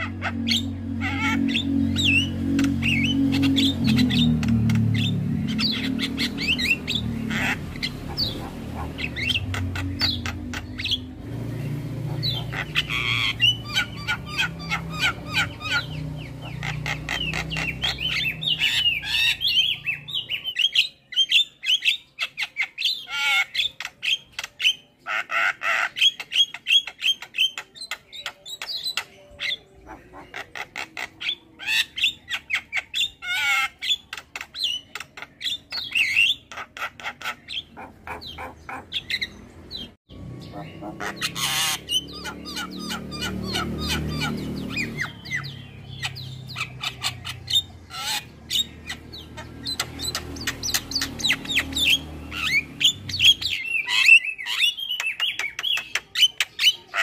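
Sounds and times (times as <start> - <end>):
starlings chattering: 0.0 - 57.0.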